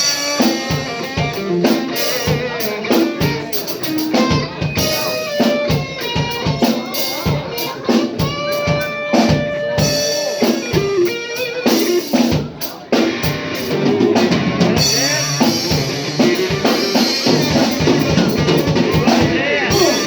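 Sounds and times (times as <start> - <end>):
drum kit beat: 0.0 - 20.0
guitar: 0.0 - 20.0
held pitched notes: 0.0 - 20.0.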